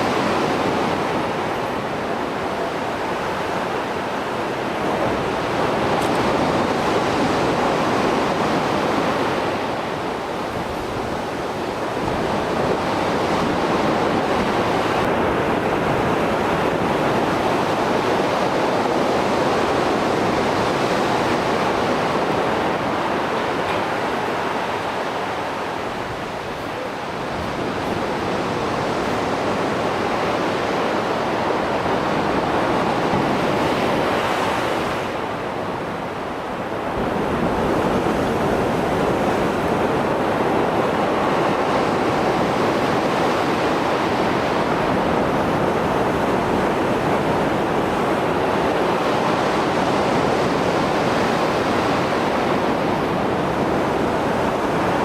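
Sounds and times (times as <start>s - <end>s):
waves breaking: 0.0s - 55.0s.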